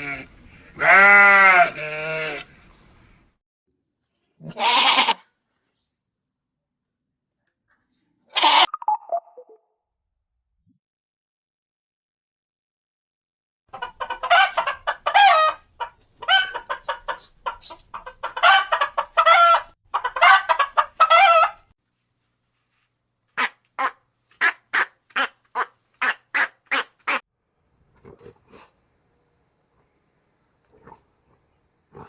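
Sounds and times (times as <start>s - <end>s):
chickens clucking and cackling: 13.7s - 21.7s.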